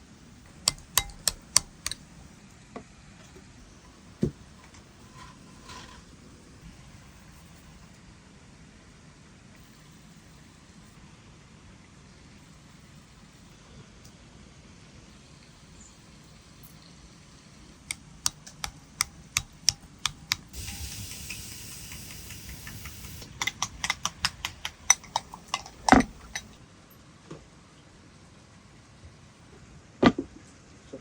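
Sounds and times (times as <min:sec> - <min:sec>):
steady hiss: 0:15.1 - 0:26.6
knife chopping on wooden board: 0:21.9 - 0:26.6.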